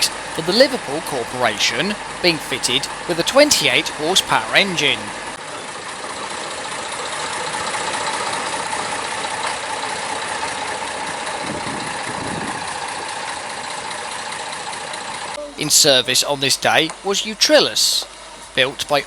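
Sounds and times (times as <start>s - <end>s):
locomotive diesel engine running: 0.0s - 19.0s.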